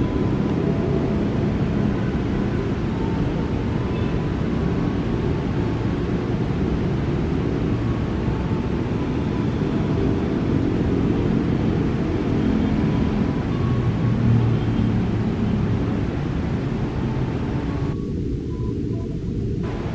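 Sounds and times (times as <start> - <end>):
electric commuter train passing: 0.0 - 19.9
freight train rumbling past: 19.6 - 19.9.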